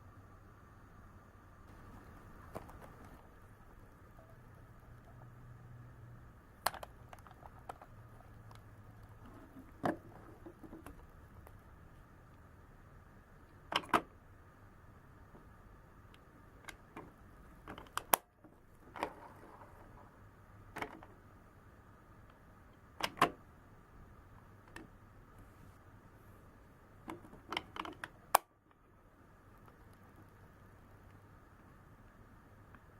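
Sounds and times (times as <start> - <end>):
faint steady background noise: 0.0 - 32.9
plastic toy clicks and knocks: 6.6 - 8.0, 27.0 - 28.5.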